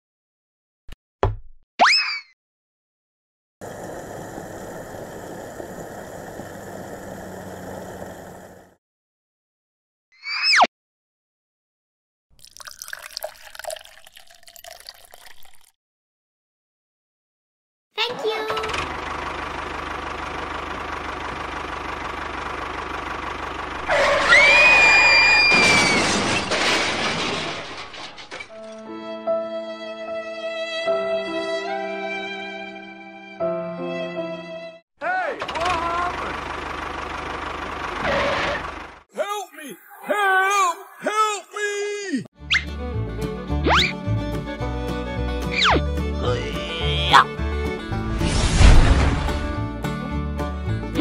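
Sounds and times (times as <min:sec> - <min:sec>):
engine idling: 0:03.6 - 0:08.8, 0:18.6 - 0:25.0, 0:35.4 - 0:39.0
loud high screech: 0:23.8 - 0:26.5
crashing clatter: 0:25.3 - 0:28.8, 0:48.0 - 0:49.6
slow violin music: 0:28.7 - 0:34.8, 0:42.7 - 0:46.3.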